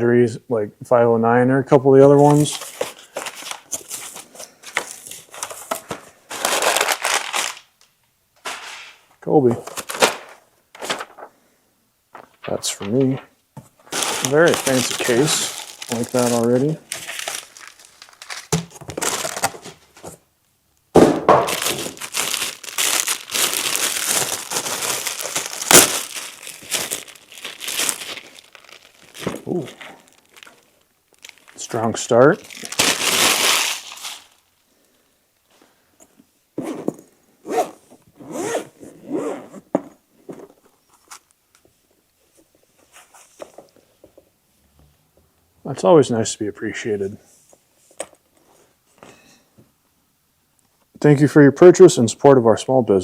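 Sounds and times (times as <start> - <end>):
packaging crinkling: 2.4 - 7.8, 13.8 - 20.2, 21.4 - 34.6
zipper being pulled: 36.6 - 39.7.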